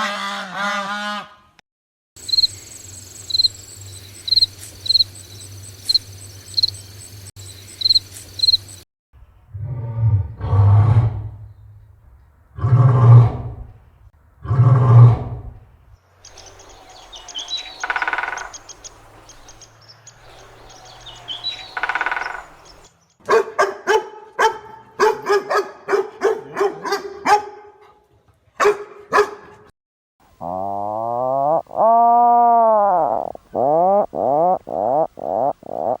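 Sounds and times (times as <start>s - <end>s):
chirps: 2.2s - 8.8s, 16.2s - 23.2s
short calls: 16.3s - 22.9s
dog barking: 23.3s - 28.0s, 28.6s - 29.7s.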